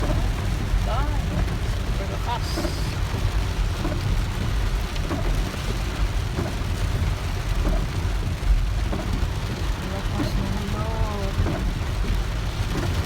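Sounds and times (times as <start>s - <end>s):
heavy rain on a car: 0.0s - 13.0s
road and engine rumble: 0.0s - 13.0s.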